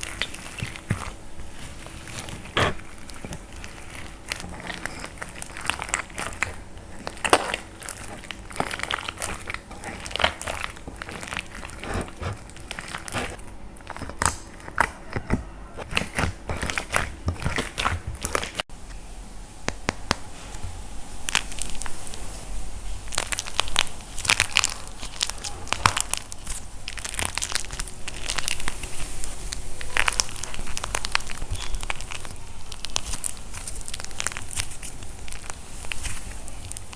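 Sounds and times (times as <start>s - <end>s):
dry clay crunching and cracking: 0.0s - 18.7s, 23.1s - 36.9s.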